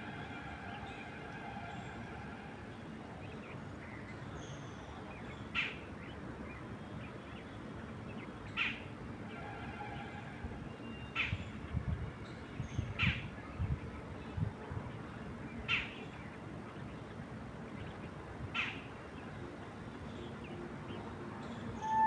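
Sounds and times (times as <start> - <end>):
bird call sweeping downward: 21.8 - 22.0.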